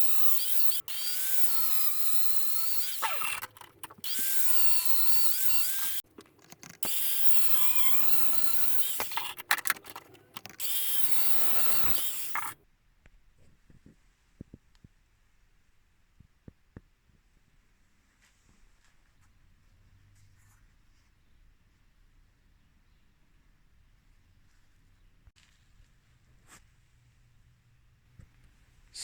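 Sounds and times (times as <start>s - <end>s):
power tool grinding steel: 0.0s - 12.6s.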